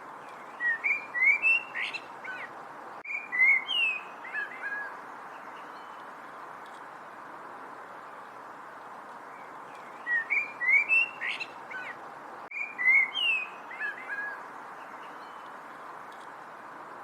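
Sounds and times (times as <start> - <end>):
steady background hiss: 0.0 - 17.0
bird chirping and whistling: 0.6 - 2.4, 10.1 - 11.9, 12.5 - 14.2.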